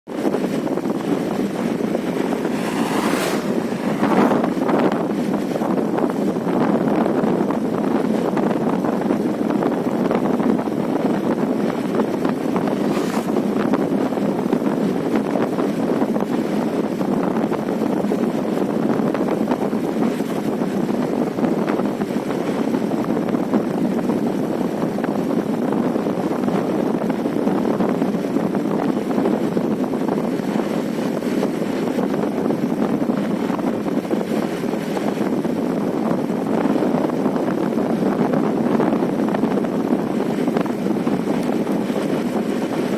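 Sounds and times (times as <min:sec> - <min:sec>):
vehicle road noise: 0:00.1 - 0:07.8, 0:09.3 - 0:24.6
wind noise: 0:00.1 - 0:42.9.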